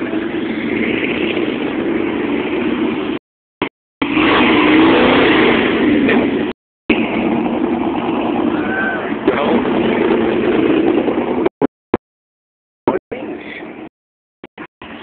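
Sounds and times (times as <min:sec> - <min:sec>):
car engine roaring: 0:00.0 - 0:11.7.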